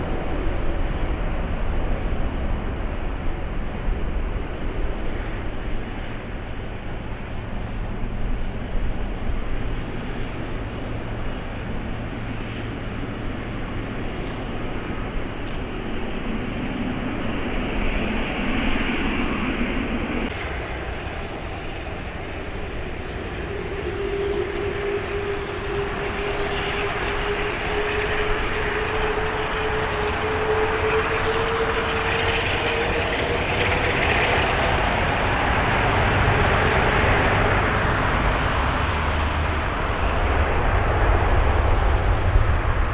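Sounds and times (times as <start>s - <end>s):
jet engines roaring: 0.0s - 42.9s
steady rising engine tone: 15.8s - 42.9s.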